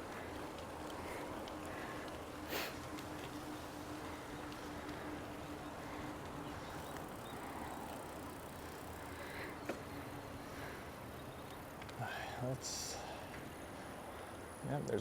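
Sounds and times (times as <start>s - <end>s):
bicycle rolling on a trail: 0.0s - 15.0s
faint steady hum: 0.0s - 15.0s.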